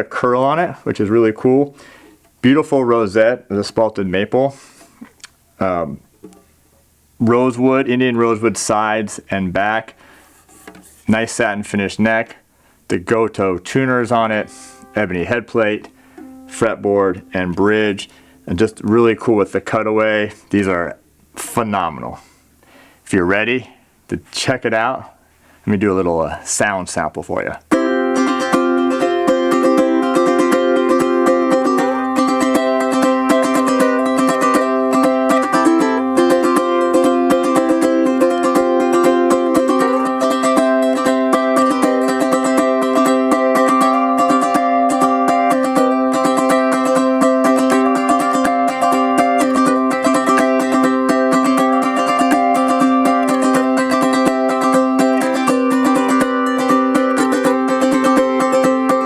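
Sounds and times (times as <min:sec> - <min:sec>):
ukulele strummed: 0:13.5 - 0:19.9, 0:27.7 - 0:59.0.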